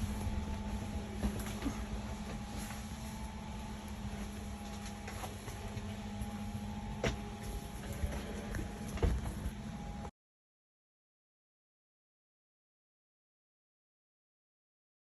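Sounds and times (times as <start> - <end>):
turboprop engine drone: 0.0 - 10.1.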